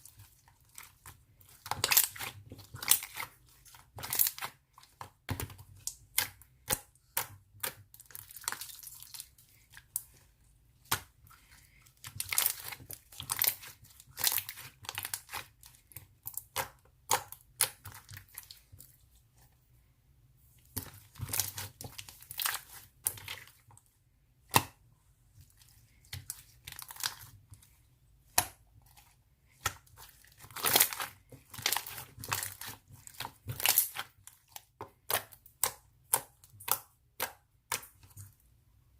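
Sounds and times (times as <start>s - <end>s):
slime crackling and popping: 1.7s - 3.3s, 30.2s - 34.2s.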